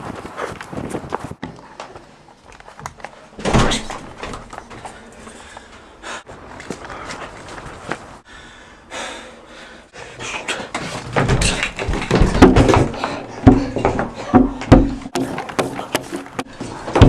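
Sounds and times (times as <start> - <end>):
heavy thumps and knocks: 11.0 - 17.0.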